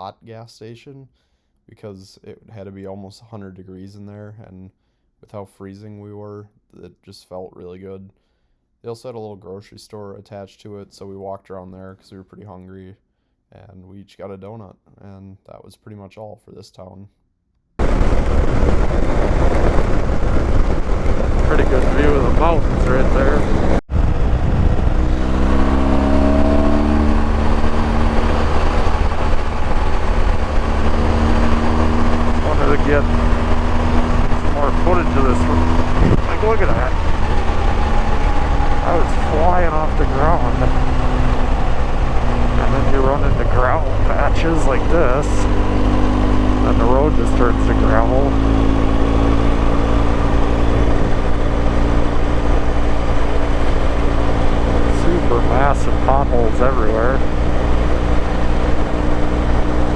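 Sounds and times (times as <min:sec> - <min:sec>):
motorcycle engine accelerating: 0:17.8 - 0:59.9
wind and road noise: 0:17.8 - 0:59.9.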